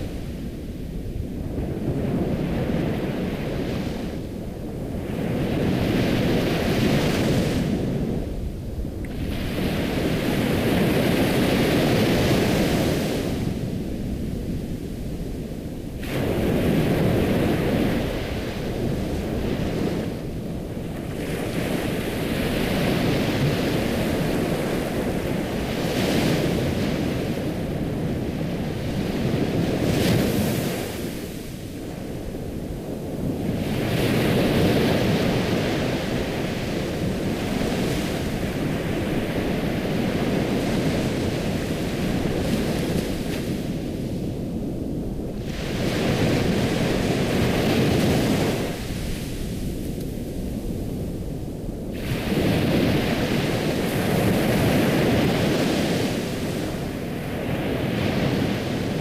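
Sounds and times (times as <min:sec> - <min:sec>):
ocean waves breaking: 0:15.9 - 0:59.0.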